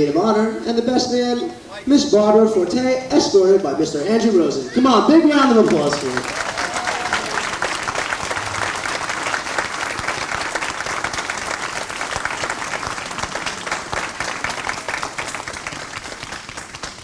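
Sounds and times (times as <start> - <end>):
crowd applauding: 5.4 - 17.0.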